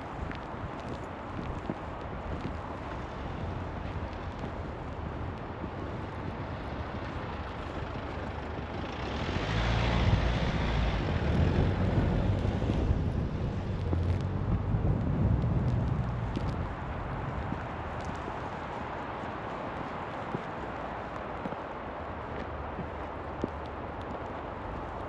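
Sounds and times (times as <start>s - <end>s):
vehicle tyre hiss on snow: 0.0s - 25.0s
wind: 0.0s - 25.0s
low vehicle rumble: 5.8s - 18.8s.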